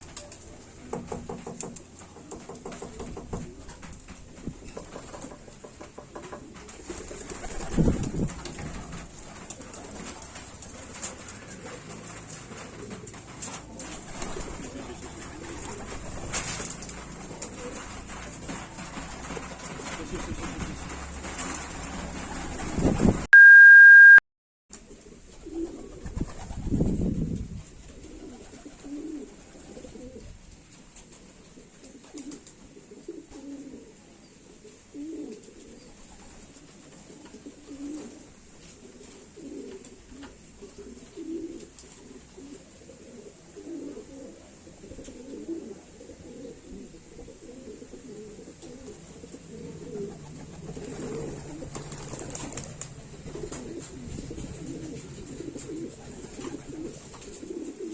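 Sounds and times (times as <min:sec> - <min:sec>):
pigeons cooing: 0:06.3 - 0:22.7, 0:28.0 - 0:30.3, 0:37.2 - 0:57.9
loud steady beep: 0:23.3 - 0:24.2.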